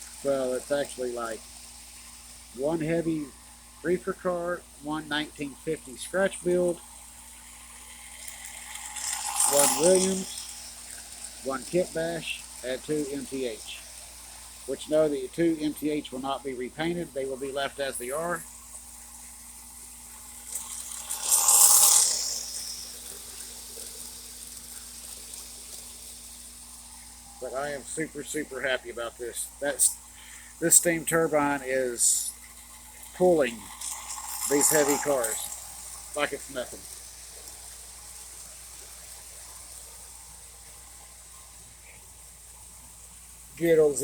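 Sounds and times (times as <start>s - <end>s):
model train running: 0.0s - 44.0s
steady low hum: 0.0s - 44.0s
loud rush of hiss: 7.9s - 10.7s, 20.4s - 26.4s, 33.2s - 44.0s.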